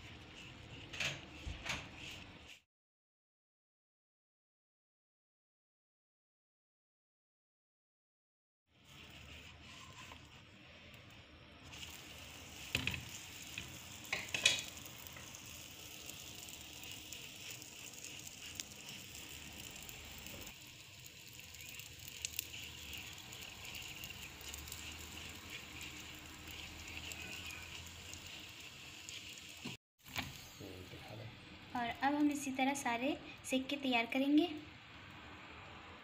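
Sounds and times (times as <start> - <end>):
oil sizzling in a pan: 8.7 - 35.5.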